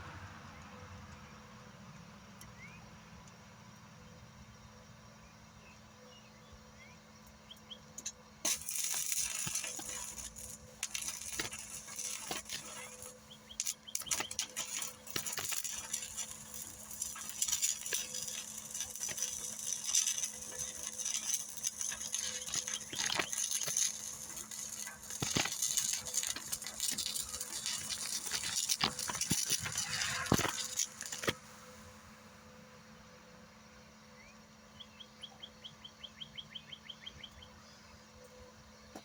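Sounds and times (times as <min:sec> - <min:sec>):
welding arc crackling: 0:08.0 - 0:32.3.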